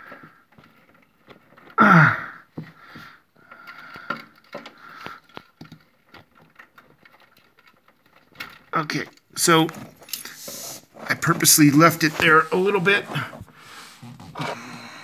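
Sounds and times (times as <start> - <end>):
small plastic clicks and knocks: 0.0 - 1.8, 2.4 - 10.2
person grunting: 1.8 - 2.4.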